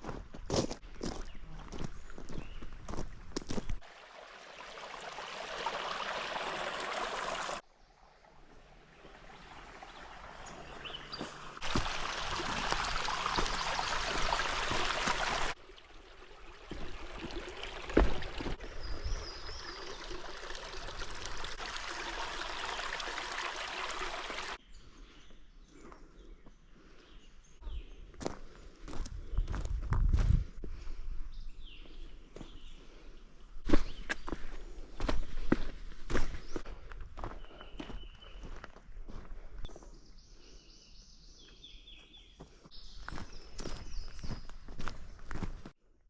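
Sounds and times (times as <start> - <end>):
stream water rushing: 3.8 - 24.6.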